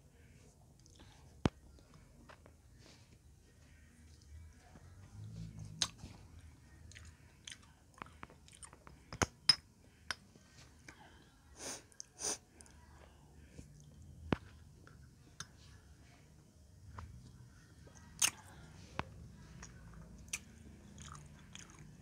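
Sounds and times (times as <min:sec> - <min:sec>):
chewing and wet mouth clicks: 0:18.2 - 0:18.5, 0:19.6 - 0:22.0.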